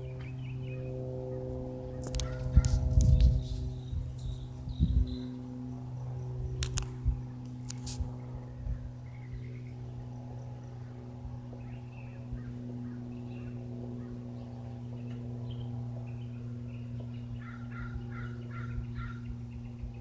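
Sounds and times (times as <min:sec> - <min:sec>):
bird calls: 0:00.0 - 0:05.6, 0:09.0 - 0:20.0
propeller aircraft engine drone: 0:00.0 - 0:20.0
crow cawing: 0:17.4 - 0:19.4.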